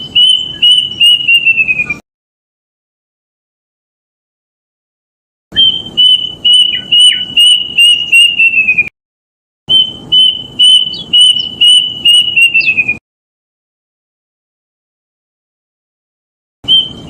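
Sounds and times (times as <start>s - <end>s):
cuckoo whistled song: 0.0s - 2.0s, 5.5s - 8.9s, 9.7s - 13.0s, 16.6s - 17.0s.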